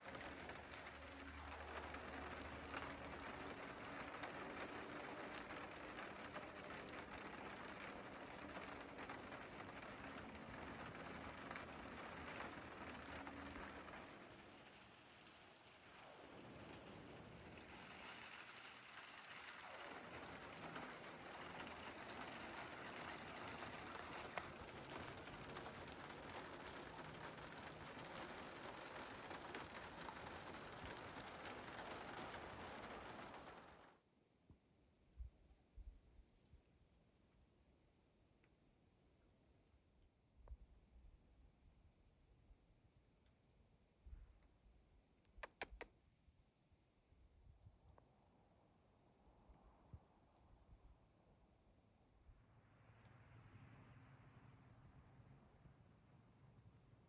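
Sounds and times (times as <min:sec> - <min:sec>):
freezing rain patter: 0:00.0 - 0:34.0.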